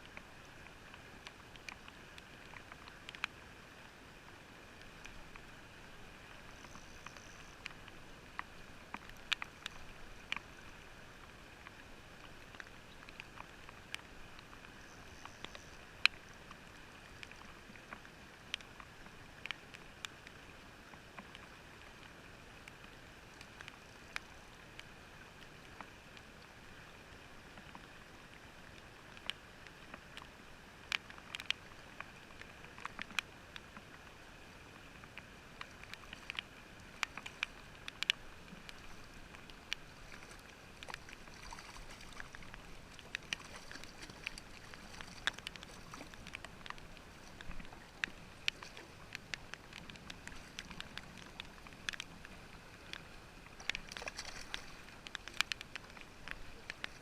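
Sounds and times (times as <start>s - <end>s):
faint steady hiss: 0.0s - 57.0s
muffled clicks and taps: 6.5s - 10.5s, 35.0s - 57.0s.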